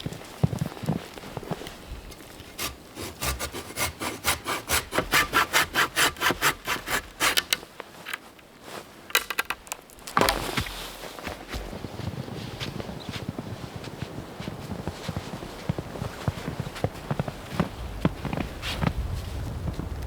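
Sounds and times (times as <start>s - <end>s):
hand saw cutting wood: 2.6s - 7.7s.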